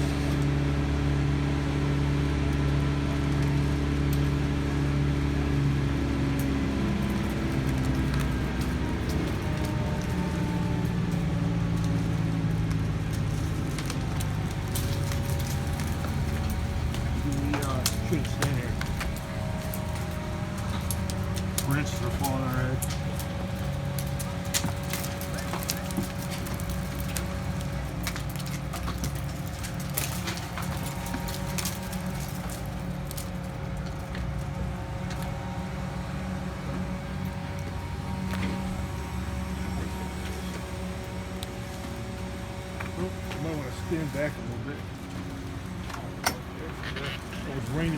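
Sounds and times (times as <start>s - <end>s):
engine humming: 0.0s - 47.9s
sharp cracks and snaps: 2.5s - 36.3s.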